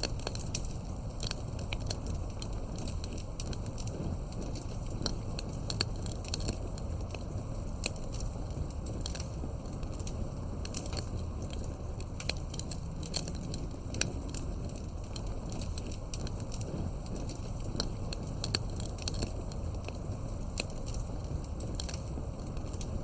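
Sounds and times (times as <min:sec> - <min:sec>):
low rumble of flames: 0:00.0 - 0:23.0
wood fire crackling and popping: 0:00.0 - 0:23.0.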